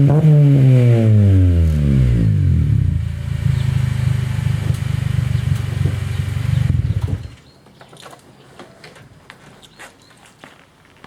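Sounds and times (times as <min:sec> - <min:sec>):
car engine idling: 0:00.8 - 0:07.4.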